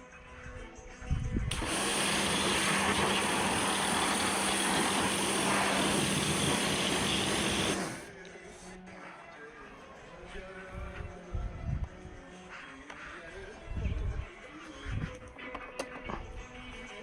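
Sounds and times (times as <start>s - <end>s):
low motor hum: 1.5s - 8.1s
pressure washer water jet spraying: 1.5s - 8.1s.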